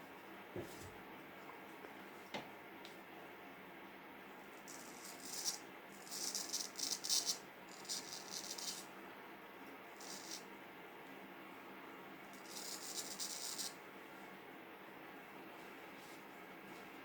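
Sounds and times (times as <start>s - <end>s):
razor scraping through beard: 4.7s - 8.9s, 10.0s - 10.4s, 12.4s - 13.8s.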